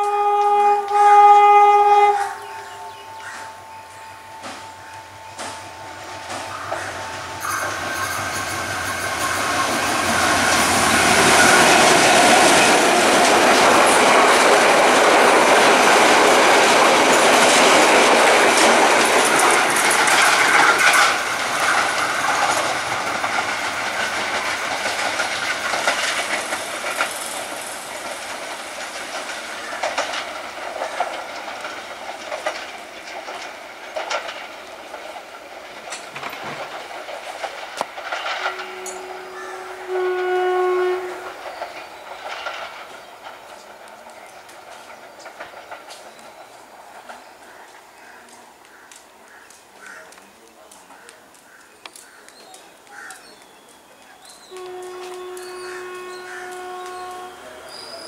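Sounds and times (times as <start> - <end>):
train passing: 0.0 - 58.0
train wheel clicks over rail joints: 4.4 - 58.0.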